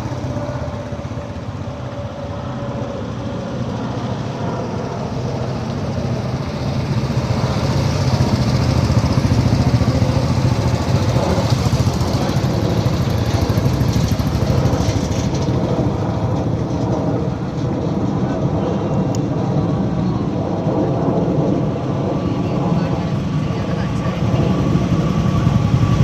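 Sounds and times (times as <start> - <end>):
motorcycle engine running: 0.0 - 18.6, 22.9 - 26.0.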